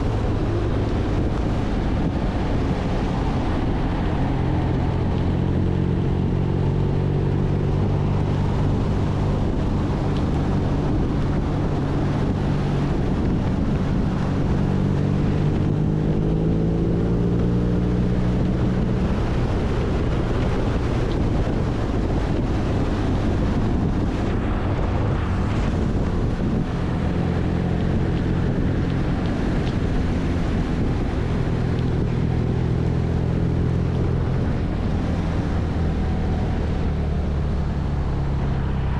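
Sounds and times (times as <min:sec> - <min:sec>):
road noise: 0:00.0 - 0:38.9
wind rushing over microphone: 0:00.0 - 0:38.9.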